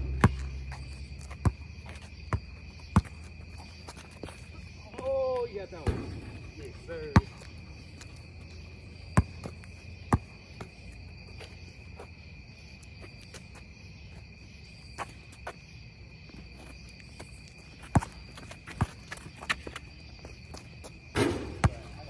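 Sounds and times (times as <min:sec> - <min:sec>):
basketball bouncing: 0:00.0 - 0:04.4, 0:05.8 - 0:07.5, 0:09.1 - 0:10.8, 0:17.9 - 0:18.2, 0:21.2 - 0:22.0
crickets trilling: 0:00.0 - 0:22.0.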